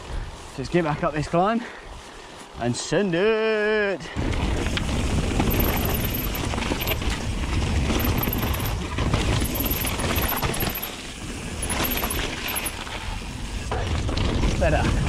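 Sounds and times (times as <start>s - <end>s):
bike clicking and rattling: 4.5s - 14.6s.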